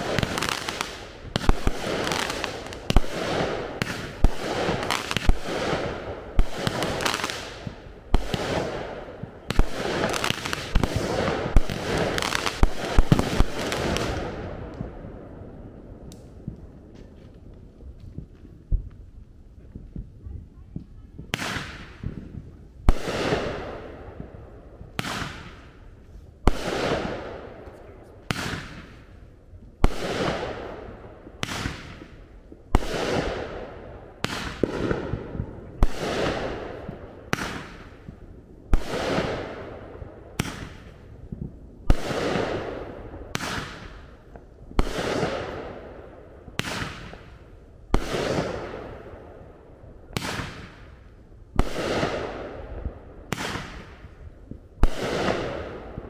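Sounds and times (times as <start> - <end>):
firework bangs with echo: 0.0 - 15.3, 21.2 - 25.8, 26.5 - 29.1, 29.8 - 41.0, 41.8 - 44.2, 44.8 - 46.0, 46.6 - 49.4, 50.1 - 51.0, 51.6 - 54.2, 54.8 - 56.0.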